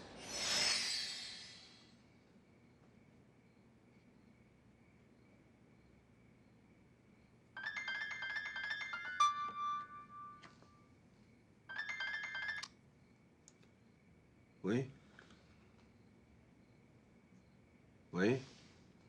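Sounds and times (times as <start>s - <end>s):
telephone ringing electronic ringtone: 7.6s - 10.7s, 11.7s - 12.7s.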